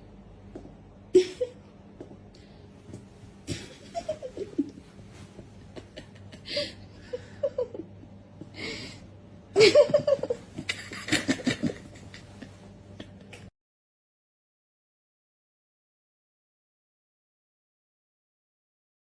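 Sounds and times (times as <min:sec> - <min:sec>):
person laughing: 0:01.1 - 0:01.7, 0:03.4 - 0:08.8, 0:09.5 - 0:13.5
breaths: 0:02.3 - 0:02.8, 0:08.4 - 0:09.1.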